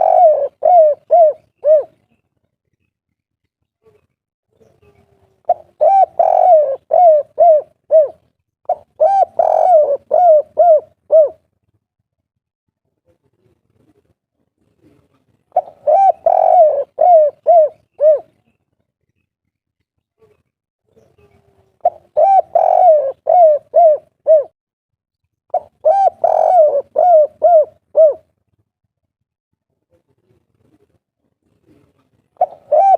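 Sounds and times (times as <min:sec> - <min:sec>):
dove cooing: 0:00.0 - 0:02.1, 0:04.8 - 0:11.4, 0:14.8 - 0:18.4, 0:21.4 - 0:24.6, 0:25.5 - 0:28.3, 0:31.6 - 0:32.9.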